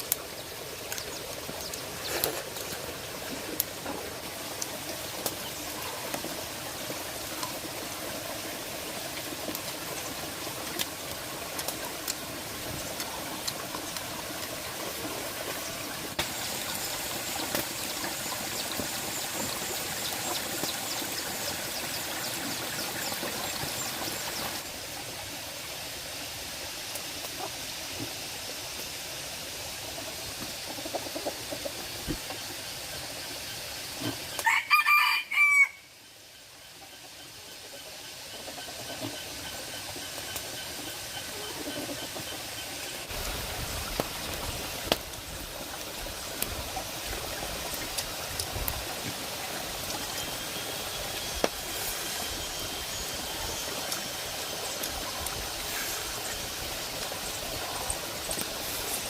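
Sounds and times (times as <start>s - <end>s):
bright hiss: 42.8s - 59.0s.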